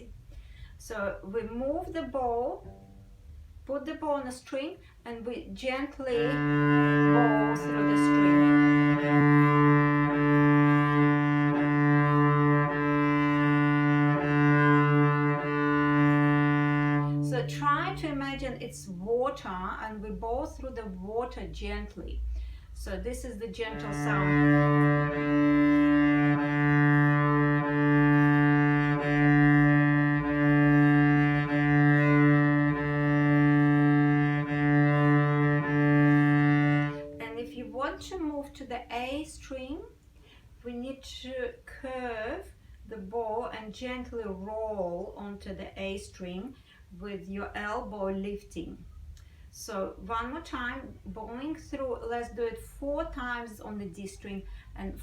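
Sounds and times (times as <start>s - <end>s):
cello sustained low note: 2.6s - 3.5s, 6.1s - 19.4s, 22.8s - 38.0s.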